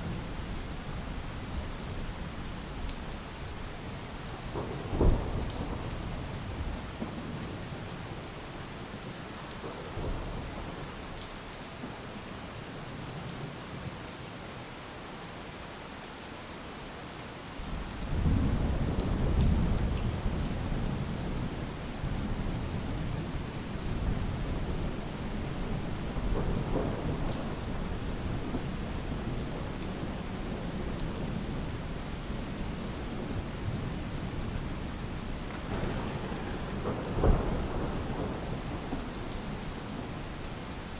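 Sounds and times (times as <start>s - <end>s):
steady rain falling: 0.0s - 40.9s
thunder rumbling: 4.3s - 7.6s, 18.0s - 40.4s.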